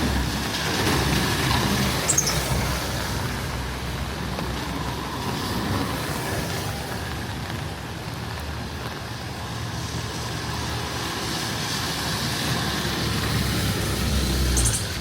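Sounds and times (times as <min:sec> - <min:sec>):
traffic noise: 0:00.0 - 0:15.0
brief high squeak: 0:02.0 - 0:02.5, 0:14.6 - 0:15.0
vehicle engine rumbling: 0:12.4 - 0:15.0.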